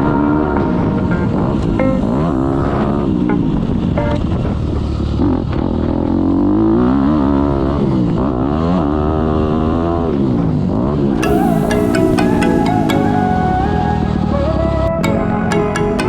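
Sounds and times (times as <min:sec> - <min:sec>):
music: 0:00.0 - 0:04.2, 0:11.2 - 0:16.0.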